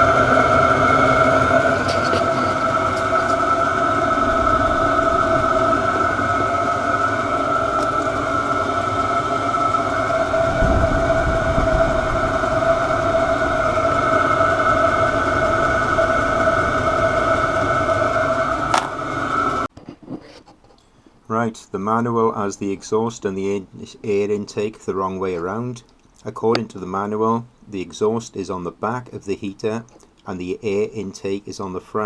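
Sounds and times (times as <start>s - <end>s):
fan whine: 0.0s - 19.7s
low burner rumble: 0.0s - 19.7s.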